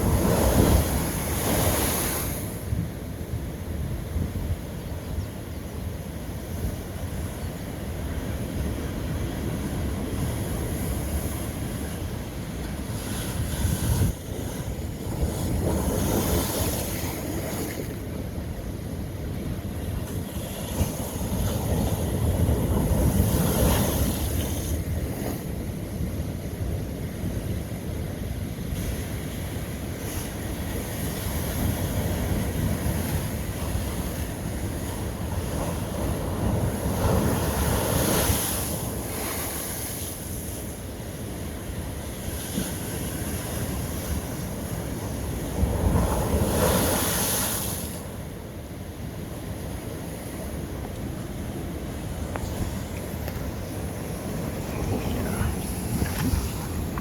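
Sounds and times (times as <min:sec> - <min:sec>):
ocean waves breaking on rock: 0:00.0 - 0:04.7, 0:07.9 - 0:18.2, 0:28.7 - 0:57.0.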